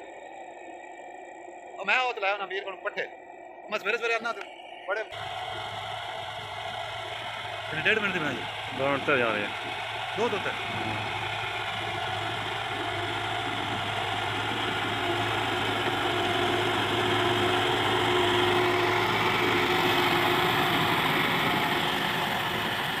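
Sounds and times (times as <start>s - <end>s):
tractor diesel engine: 3.7s - 23.0s.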